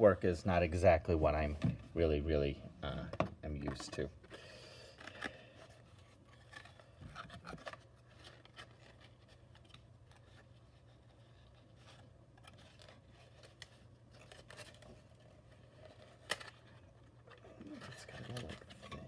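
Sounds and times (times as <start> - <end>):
cardboard pieces rustling and clicking: 5.0 - 19.0.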